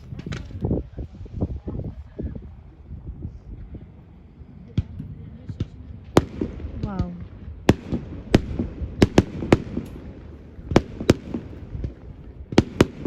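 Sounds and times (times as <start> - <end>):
firework shells bursting: 6.2 - 13.0.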